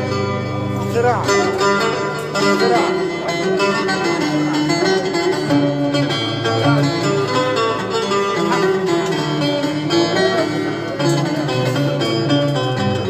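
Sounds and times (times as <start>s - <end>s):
plucked string instruments: 0.0s - 13.0s.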